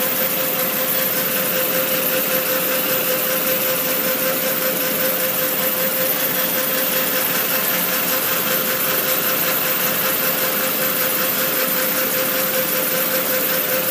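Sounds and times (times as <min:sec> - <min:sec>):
car engine idling: 0:00.0 - 0:13.9
diverter valve pulsating hiss: 0:00.0 - 0:13.9.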